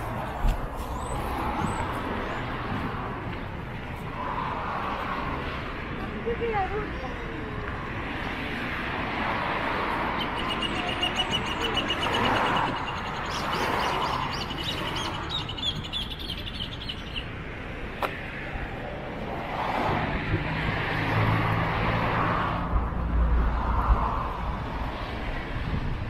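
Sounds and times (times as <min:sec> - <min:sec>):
outdoor background noise: 0:00.0 - 0:26.0
bird chirping rapidly: 0:10.2 - 0:17.3.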